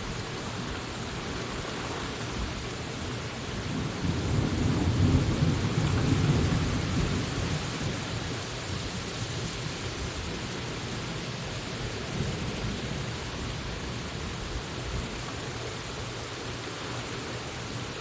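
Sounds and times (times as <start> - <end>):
steady rain: 0.0 - 18.0
thunder rumbling: 3.6 - 9.0.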